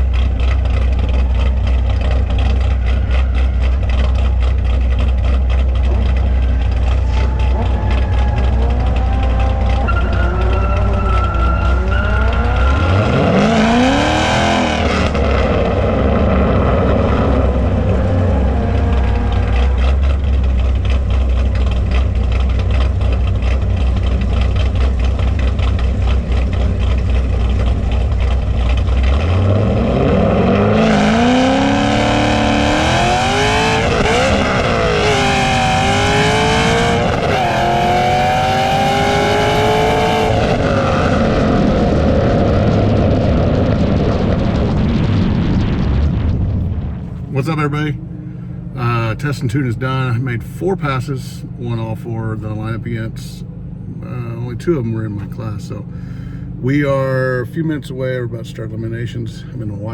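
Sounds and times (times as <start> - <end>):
car launching through gear shifts: 0.0 - 43.1
car engine revving: 0.0 - 59.9
low engine rumble: 0.0 - 59.9.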